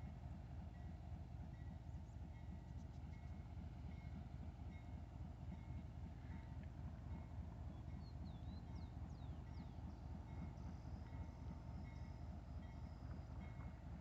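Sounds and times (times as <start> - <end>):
diesel train rumbling: 0.0 - 14.0.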